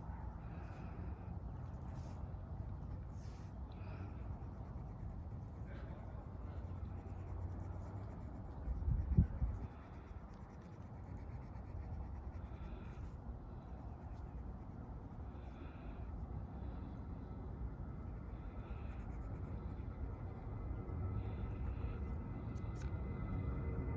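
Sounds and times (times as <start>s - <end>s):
low outdoor rumble: 0.0s - 23.9s
crayon scratching on paper: 1.7s - 15.7s.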